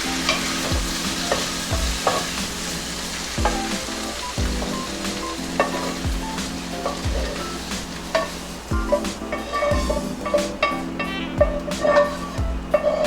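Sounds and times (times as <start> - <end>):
backing track with drum beat: 0.0 - 13.0
vegetables sizzling in a pan: 0.0 - 13.0
utensil clicking against pan: 3.7 - 13.0.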